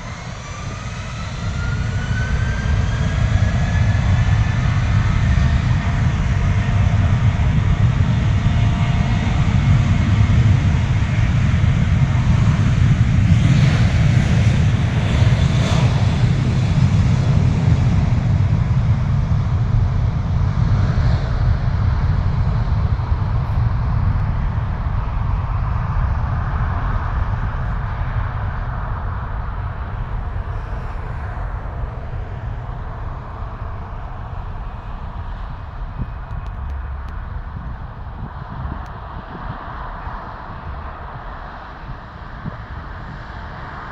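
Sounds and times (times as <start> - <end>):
jet engine rumble in cabin: 0.0 - 43.9
airflow noise: 23.4 - 42.6.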